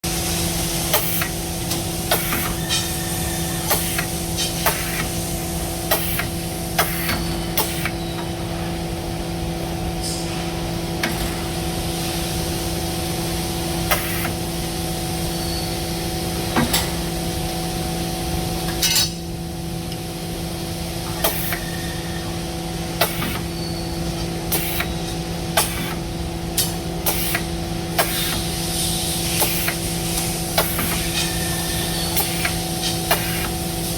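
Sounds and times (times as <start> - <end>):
short air hisses: 2.1 - 7.9, 13.9 - 14.4, 24.5 - 24.9, 27.0 - 27.4, 28.0 - 33.9.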